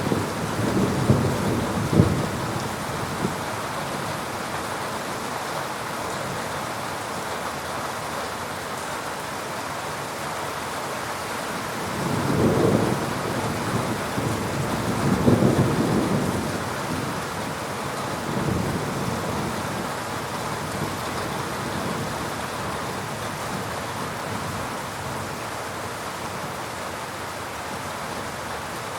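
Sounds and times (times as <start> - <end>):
distant thunder rumbling: 0.0 - 3.4, 11.9 - 17.5
heavy rain falling: 0.0 - 28.9.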